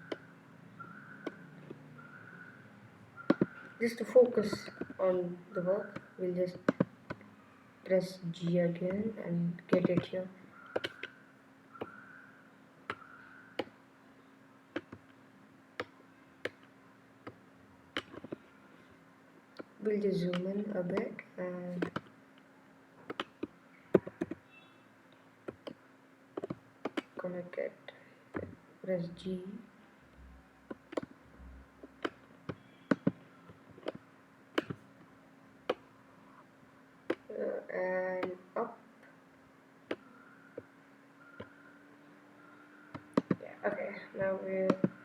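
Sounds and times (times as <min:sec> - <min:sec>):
faint steady hum: 0:00.0 - 0:45.0
mouse and keyboard clicks: 0:03.2 - 0:05.1, 0:09.7 - 0:11.2, 0:12.9 - 0:13.7, 0:19.6 - 0:21.1, 0:21.8 - 0:22.1, 0:23.1 - 0:24.6, 0:26.4 - 0:27.2, 0:31.8 - 0:34.0, 0:34.6 - 0:34.8, 0:43.0 - 0:43.4.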